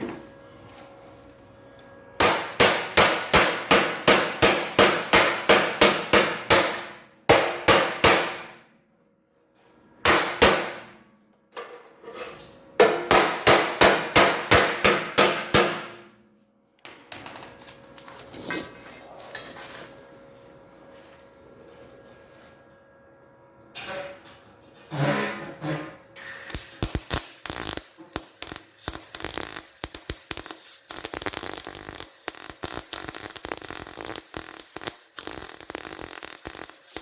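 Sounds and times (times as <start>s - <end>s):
hammer striking steel: 2.2s - 8.6s, 10.0s - 10.9s, 12.8s - 16.0s.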